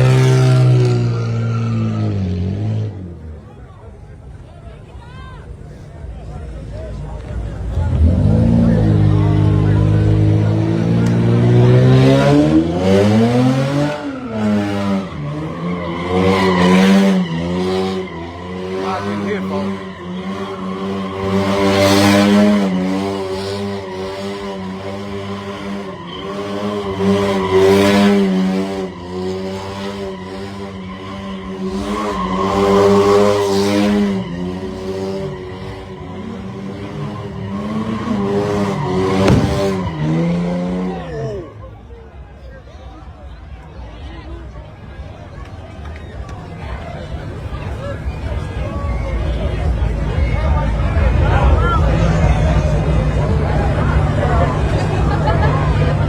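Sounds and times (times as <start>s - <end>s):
car engine revving hard: 0.0s - 3.2s, 7.6s - 41.5s
tyres screeching: 13.2s - 41.5s.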